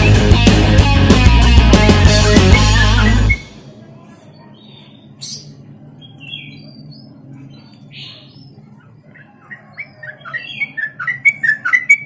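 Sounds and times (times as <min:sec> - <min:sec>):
bird calling falling notes: 0:02.0 - 0:03.6
bird chirping: 0:04.2 - 0:12.0.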